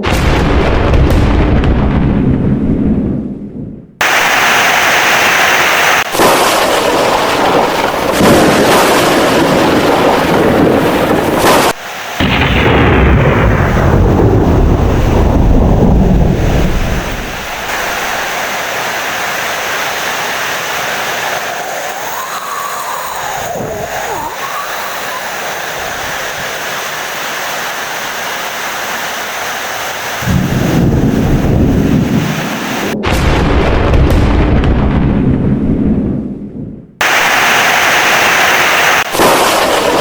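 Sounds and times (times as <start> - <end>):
deep thunder rumble: 0.0 - 4.4, 6.1 - 19.4, 30.2 - 37.3
heavy rain: 4.0 - 33.0, 37.0 - 40.0.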